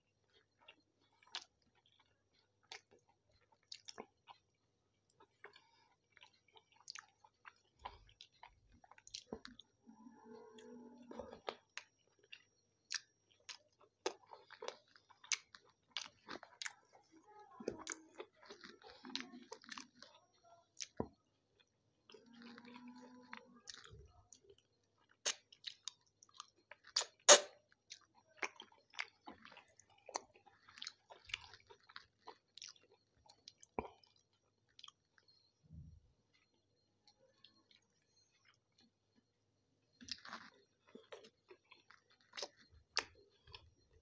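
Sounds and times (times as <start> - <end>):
wet chewing mouth clicks: 0.3 - 4.5, 5.1 - 9.6, 10.4 - 17.0, 20.8 - 34.2, 40.0 - 43.8.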